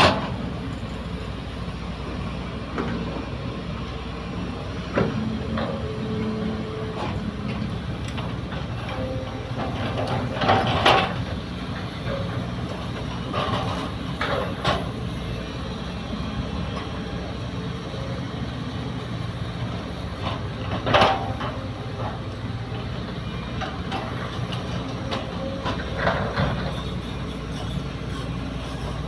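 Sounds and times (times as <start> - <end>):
diesel excavator droning: 0.0 - 29.0.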